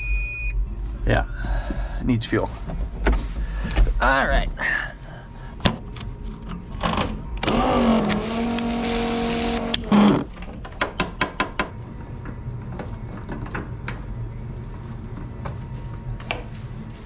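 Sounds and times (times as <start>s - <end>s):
low steady hum: 0.0s - 11.0s
fuel pump whine: 4.7s - 10.4s.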